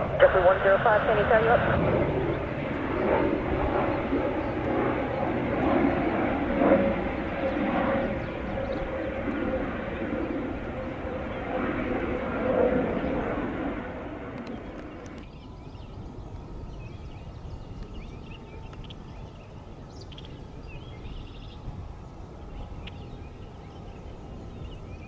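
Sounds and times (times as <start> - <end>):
radio channel hiss: 0.0 - 1.8
outdoor background noise: 0.0 - 25.0.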